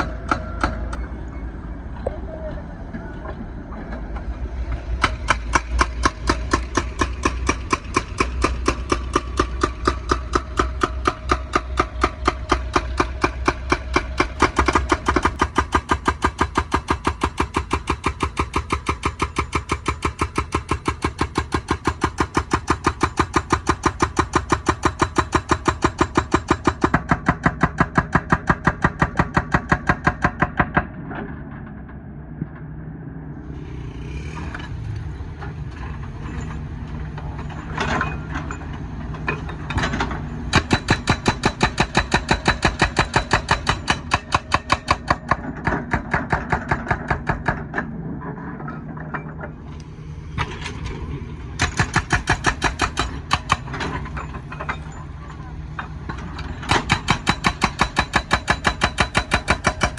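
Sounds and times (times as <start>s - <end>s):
excavator engine running: 0.0s - 59.9s
hydraulic breaker hammering asphalt: 5.0s - 31.1s, 39.3s - 48.0s, 51.6s - 54.9s, 56.1s - 59.9s.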